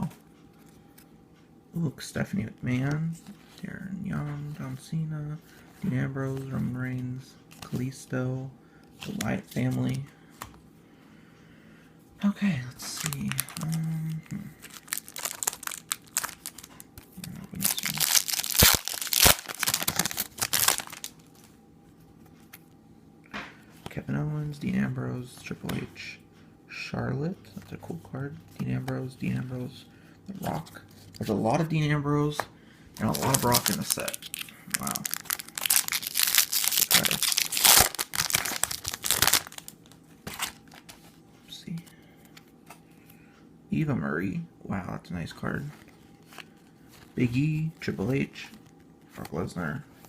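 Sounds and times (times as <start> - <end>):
wrapper crinkling: 12.8 - 21.5, 33.0 - 41.1
wrapper ripping: 12.9 - 21.2, 33.0 - 40.9.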